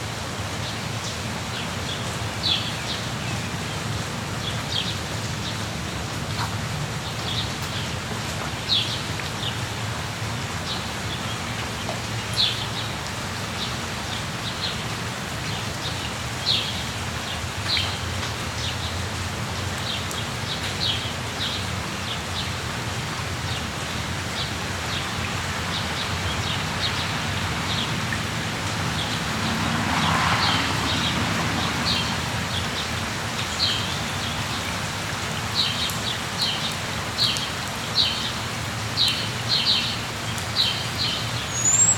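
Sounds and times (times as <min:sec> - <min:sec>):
steady rain: 0:00.0 - 0:41.9
high bird chirps: 0:41.5 - 0:41.9.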